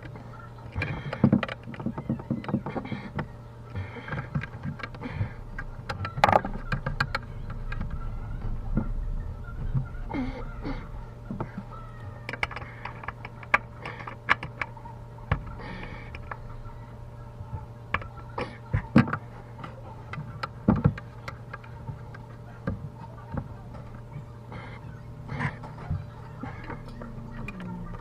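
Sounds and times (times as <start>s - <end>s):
steady low hum: 0.0s - 28.0s
tools clicking and knocking: 12.2s - 16.4s.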